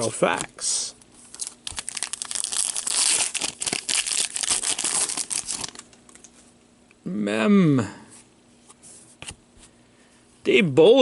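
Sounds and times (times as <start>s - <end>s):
wrapper crinkling and tearing: 1.2s - 6.4s.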